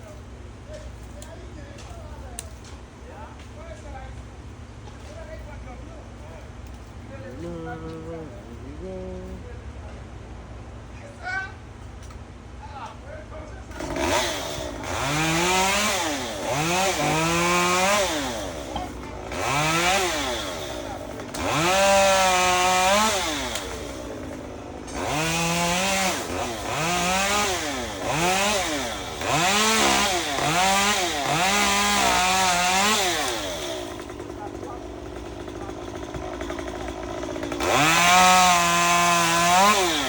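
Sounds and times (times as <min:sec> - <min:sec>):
chainsaw revving: 0:06.7 - 0:09.4, 0:13.7 - 0:40.0.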